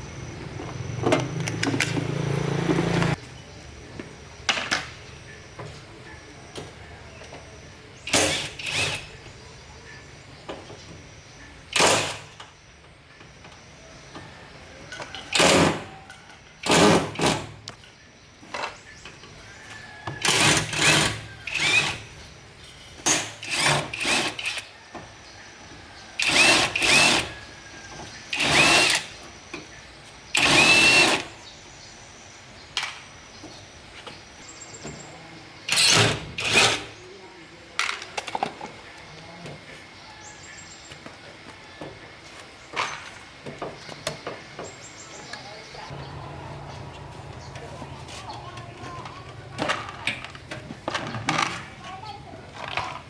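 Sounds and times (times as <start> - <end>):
power drill-driver bursts: 8.1 - 9.1, 20.2 - 22.1, 23.1 - 24.7, 26.2 - 27.3, 28.3 - 29.2, 30.3 - 31.3, 35.7 - 36.9.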